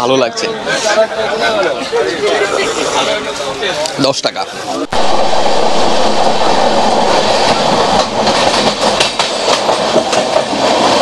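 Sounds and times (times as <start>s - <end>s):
trains rumbling and rattling: 4.2s - 11.0s
wheels clicking over rail joints: 7.2s - 11.0s.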